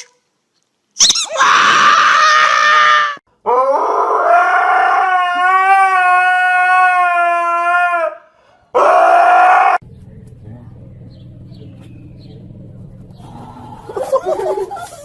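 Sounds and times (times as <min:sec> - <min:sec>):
dog howling: 0:01.3 - 0:09.8, 0:11.0 - 0:15.0
loud rough noise: 0:09.8 - 0:15.0.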